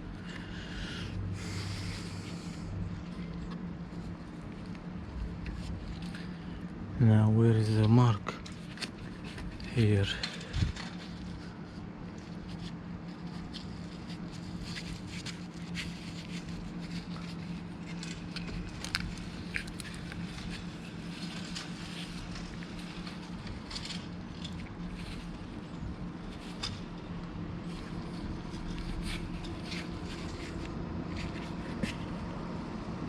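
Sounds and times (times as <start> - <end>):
steady low hum: 0.0 - 33.0
small clicks and scrapes: 7.8 - 32.2.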